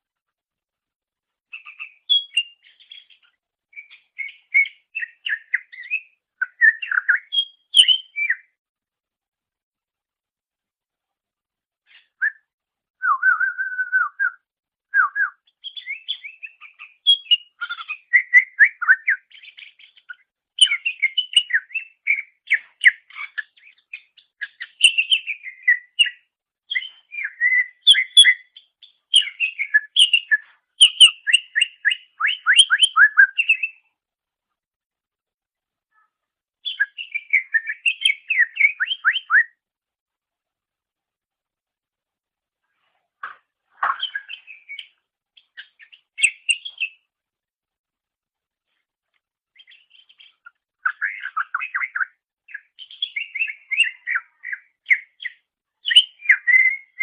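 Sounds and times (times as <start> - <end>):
bird singing chattering whistles: 1.6 - 3.1, 3.8 - 8.4, 15.0 - 28.5, 29.1 - 33.8, 36.6 - 39.5, 43.8 - 47.0, 49.6 - 57.0.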